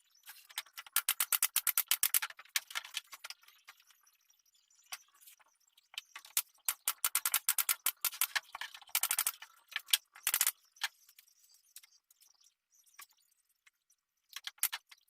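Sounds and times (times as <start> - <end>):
quick irregular clicking and rattling: 0.3 - 3.4, 6.0 - 10.6, 14.4 - 15.0.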